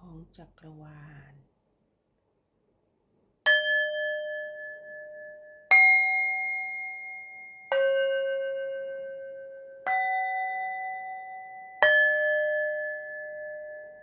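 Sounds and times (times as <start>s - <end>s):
singing bowls ringing: 3.5s - 14.0s.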